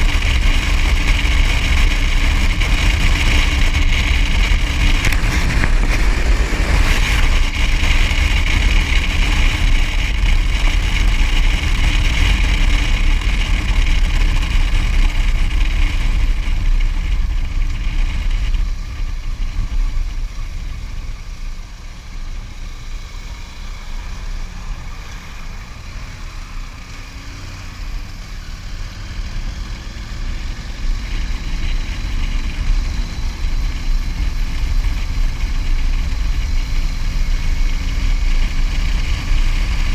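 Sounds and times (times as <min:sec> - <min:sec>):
road and wind rumble: 0:00.0 - 0:39.9
vehicle engine running: 0:00.0 - 0:39.9.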